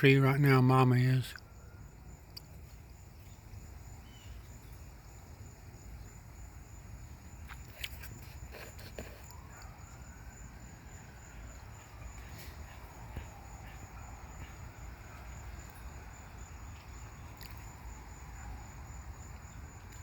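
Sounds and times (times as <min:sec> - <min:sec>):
crickets trilling: 0:00.0 - 0:20.0
faint clicks: 0:02.3 - 0:02.9.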